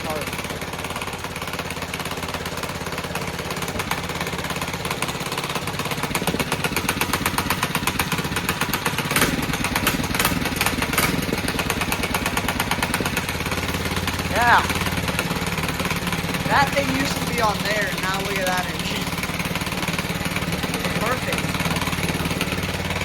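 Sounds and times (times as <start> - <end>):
small gasoline engine running: 0.0 - 23.0.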